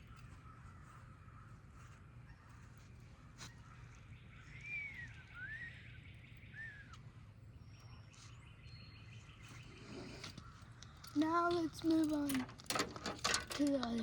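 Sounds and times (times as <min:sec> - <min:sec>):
outdoor background noise: 0:00.0 - 0:14.0
bird whistling call: 0:04.5 - 0:07.1.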